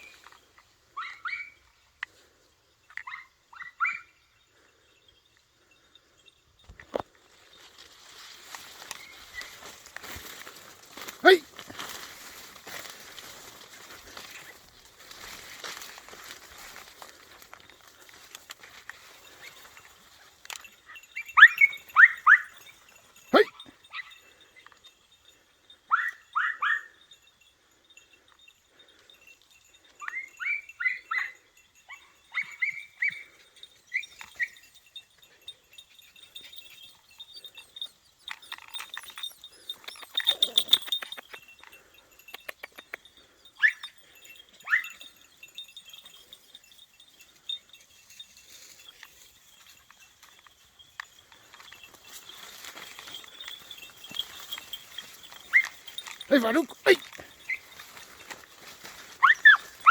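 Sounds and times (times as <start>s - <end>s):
puppies yelping: 21.0s - 22.7s, 43.2s - 45.2s, 53.1s - 58.0s, 59.1s - 59.9s
rustling: 43.9s - 59.9s.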